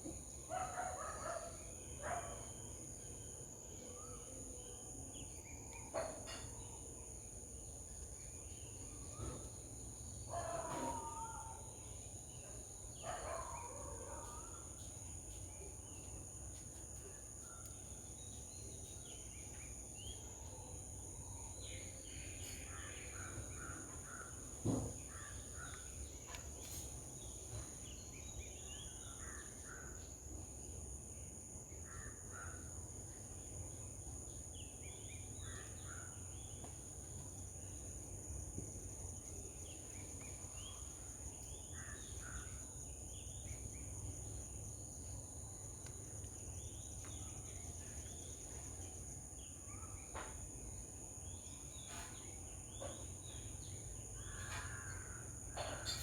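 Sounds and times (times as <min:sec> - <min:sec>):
sharp thump: 0:24.6 - 0:25.0.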